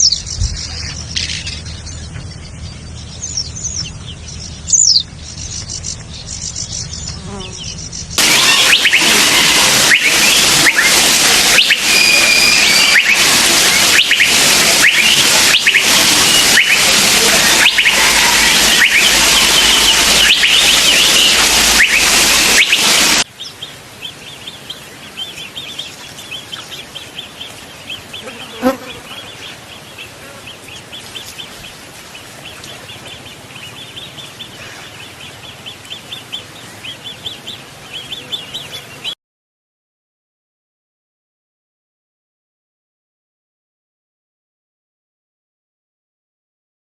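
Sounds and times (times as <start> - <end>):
wild birds whistling and calling: 0.0 - 39.2
insect chorus: 0.1 - 23.6
rapid high chirps: 7.7 - 23.3.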